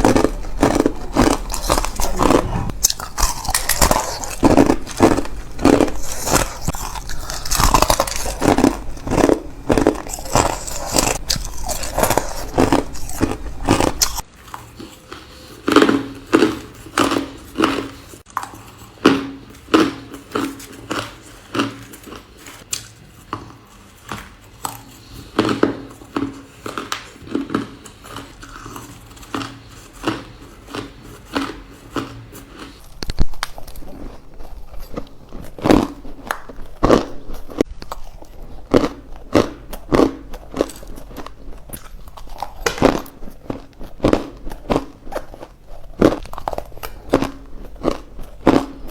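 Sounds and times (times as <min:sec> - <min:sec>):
faint hum: 0:00.0 - 0:14.2
ice crunching while chewed: 0:00.0 - 0:48.9.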